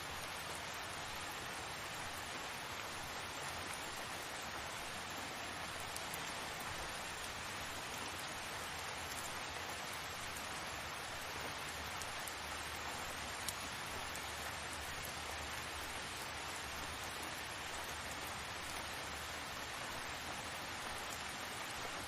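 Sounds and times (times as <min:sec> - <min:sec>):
steady rain hiss: 0:00.0 - 0:22.0
raindrop ticks: 0:05.6 - 0:07.4.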